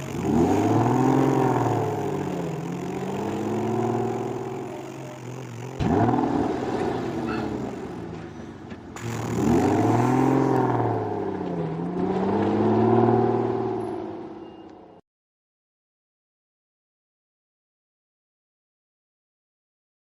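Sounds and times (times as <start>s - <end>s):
truck engine revving: 0.0s - 14.8s.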